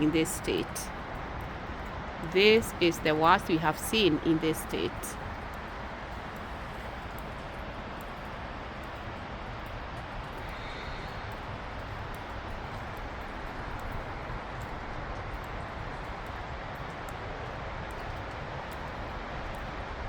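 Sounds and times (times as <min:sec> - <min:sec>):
faint ticks: 0:05.3 - 0:17.2.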